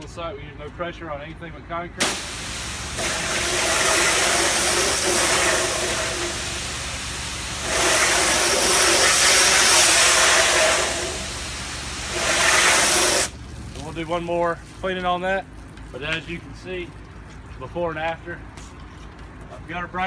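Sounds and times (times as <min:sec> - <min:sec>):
engine-driven pump humming: 0:01.3 - 0:19.9
water spray hissing: 0:02.0 - 0:13.9.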